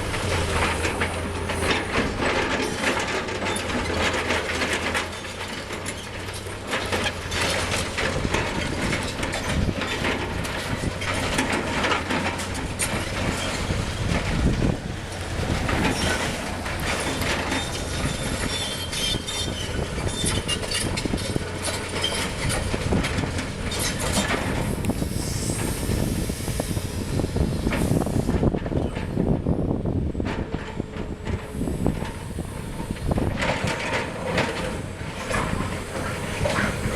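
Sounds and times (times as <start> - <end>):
excavator diesel engine running: 0.0 - 36.9
metallic clanks and squeals: 0.1 - 29.3, 30.3 - 36.9.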